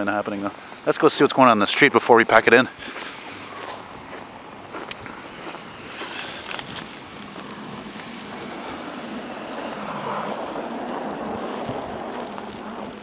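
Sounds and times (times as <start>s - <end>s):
car passing on snowy road: 2.9s - 13.0s.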